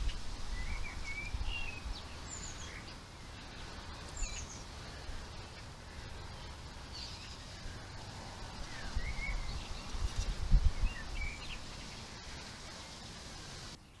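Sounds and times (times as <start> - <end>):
bird chirps and calls: 0.0 - 13.2
outdoor background noise: 0.0 - 14.0.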